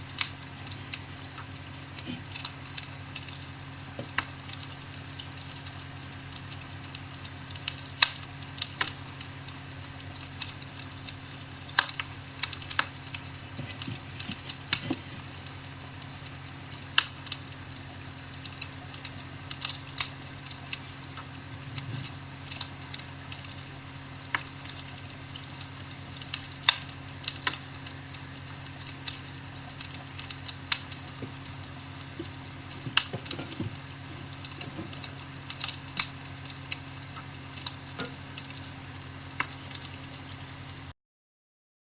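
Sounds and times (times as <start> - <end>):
fire crackling and popping: 0.0 - 40.9
steady low hum: 0.0 - 40.9.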